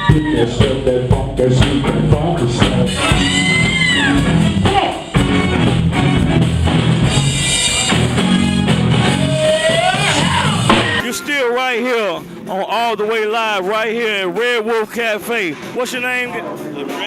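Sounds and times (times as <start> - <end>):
person singing: 0.0 - 5.0
funk band playing: 0.0 - 17.0.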